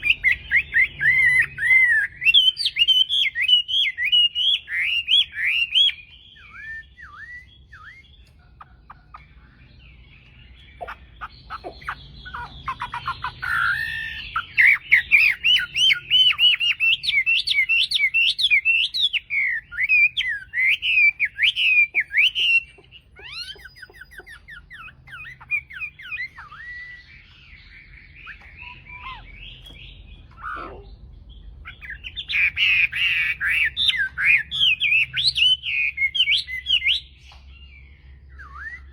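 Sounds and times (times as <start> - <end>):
bird singing whistles and trills: 0.0 - 38.9.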